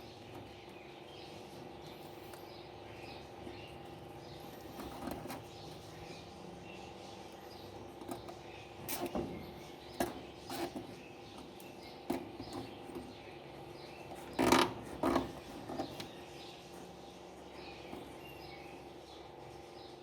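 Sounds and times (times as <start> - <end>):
clicks and knocks of handling: 8.0 - 13.2, 14.1 - 16.2.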